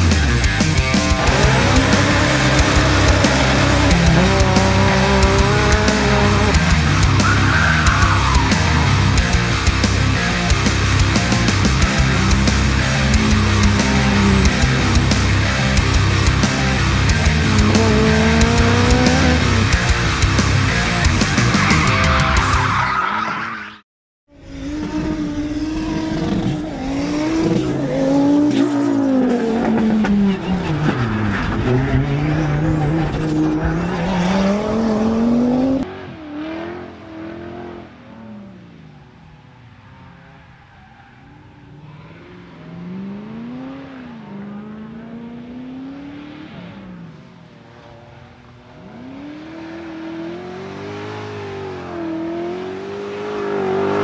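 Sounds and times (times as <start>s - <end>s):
race car engine revving: 0.0s - 22.7s, 24.3s - 54.0s
distant car revving: 0.0s - 23.4s, 24.3s - 54.0s
tyre squeal: 6.7s - 9.0s.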